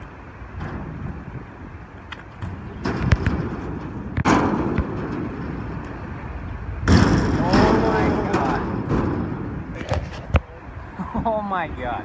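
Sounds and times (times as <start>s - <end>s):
loud impact with noisy rush: 2.8s - 5.8s, 6.8s - 9.7s.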